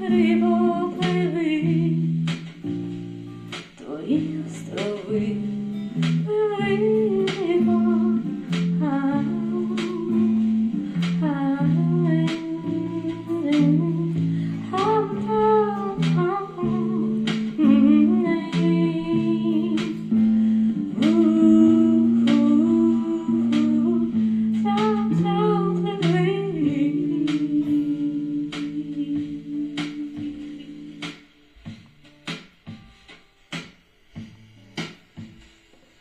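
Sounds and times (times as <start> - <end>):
acoustic guitar strumming: 0.0 - 36.0
person humming a melody: 6.2 - 31.2.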